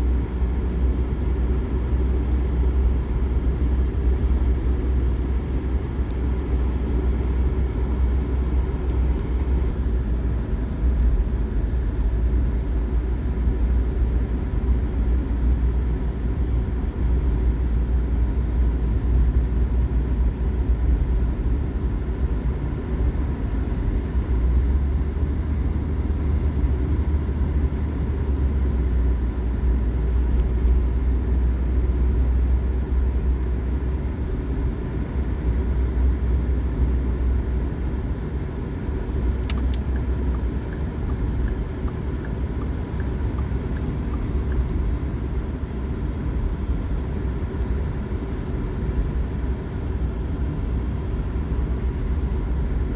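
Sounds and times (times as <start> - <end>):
car engine and tyre rumble: 0.0 - 52.9
faint steady whine: 0.0 - 52.9
light clicks: 39.4 - 44.8.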